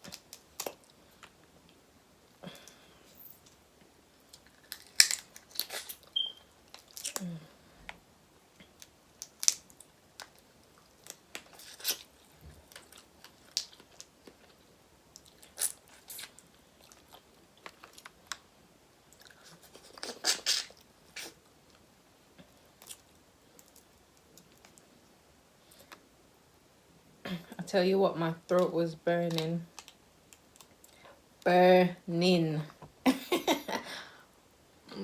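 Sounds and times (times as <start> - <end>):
crunching and chewing seafood: 0.0 - 1.8, 2.6 - 26.1, 29.3 - 31.1.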